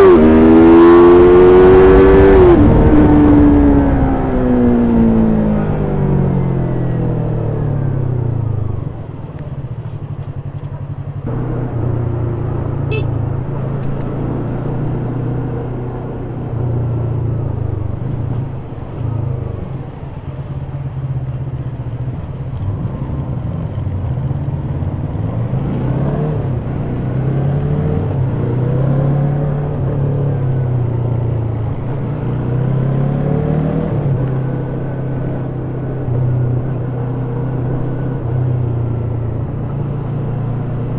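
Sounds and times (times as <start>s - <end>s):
motorcycle engine revving: 0.0s - 6.0s, 11.2s - 17.2s.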